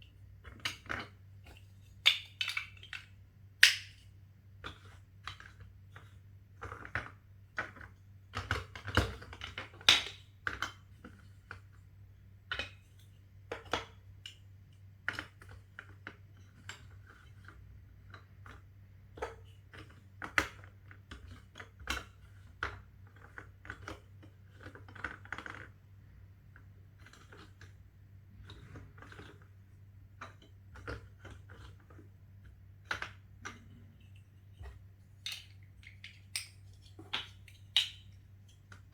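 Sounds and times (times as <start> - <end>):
plastic bricks clicking and clattering: 2.0 - 4.0, 32.8 - 38.9.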